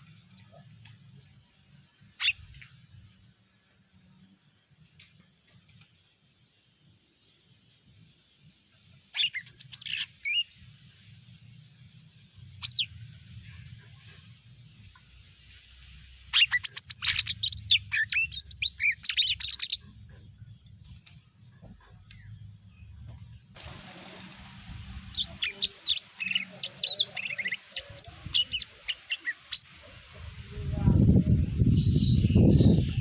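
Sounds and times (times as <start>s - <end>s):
bird singing whistled notes: 9.2s - 10.6s, 12.6s - 13.0s, 16.3s - 19.8s, 25.1s - 29.7s, 31.6s - 33.0s.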